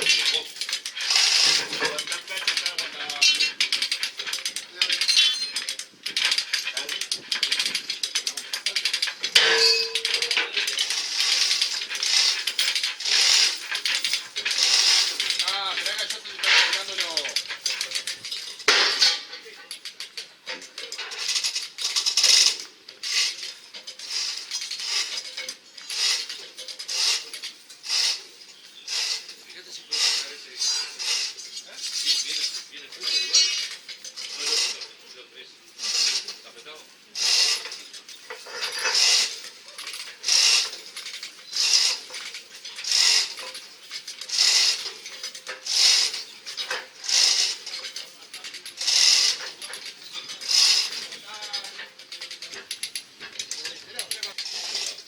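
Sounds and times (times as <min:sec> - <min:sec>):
metal ratchet clicking: 0:00.0 - 0:19.1, 0:37.2 - 0:55.0.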